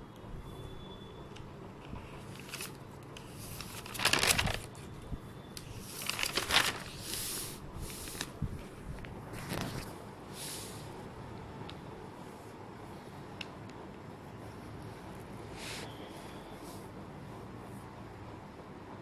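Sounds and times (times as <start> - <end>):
rustling crinkling bursts: 2.0 - 10.0.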